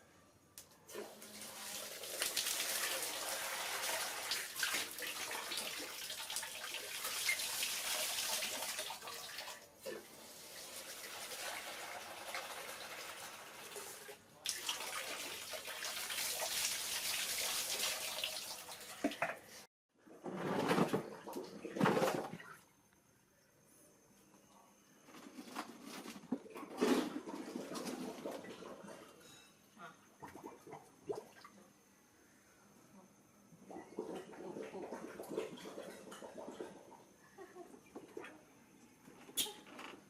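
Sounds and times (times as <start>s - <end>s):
water running: 0.9s - 19.7s.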